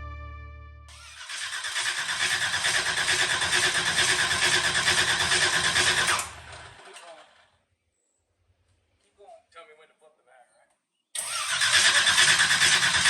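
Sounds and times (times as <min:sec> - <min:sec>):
engine cranking on starter: 0:00.9 - 0:07.5, 0:11.2 - 0:13.0.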